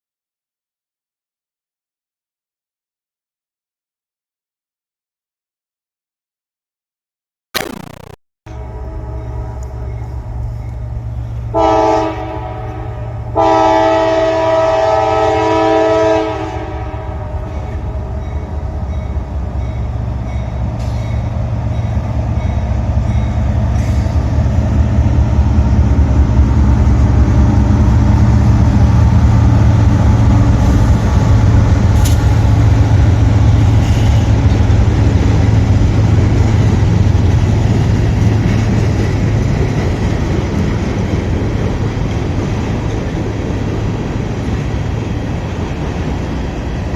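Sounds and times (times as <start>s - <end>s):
locomotive air horn: 11.5s - 17.3s
train rumbling past: 16.6s - 46.9s.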